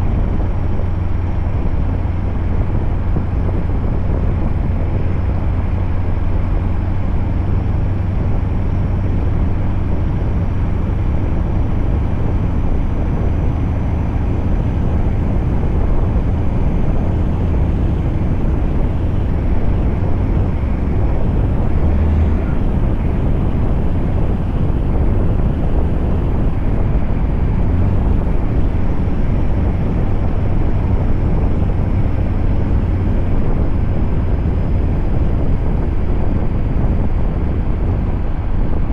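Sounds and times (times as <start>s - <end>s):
road noise: 0.0s - 38.9s
truck engine drone: 0.0s - 38.9s.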